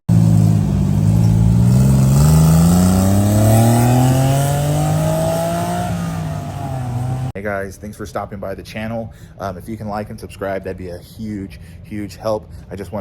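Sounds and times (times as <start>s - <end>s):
small truck engine accelerating: 0.1s - 7.4s.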